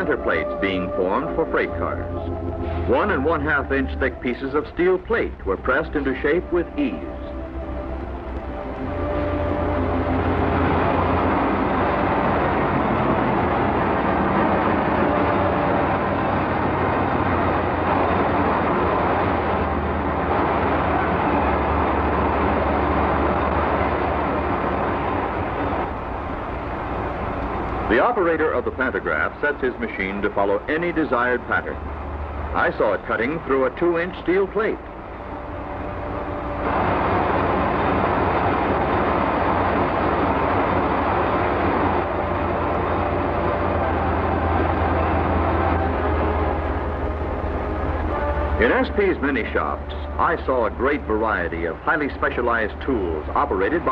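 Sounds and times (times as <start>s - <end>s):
heavy machinery noise: 0.0s - 53.9s.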